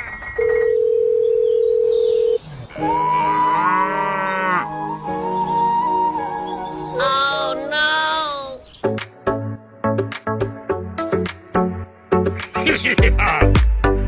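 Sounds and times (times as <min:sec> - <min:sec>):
long low cow moo: 0:02.7 - 0:04.7.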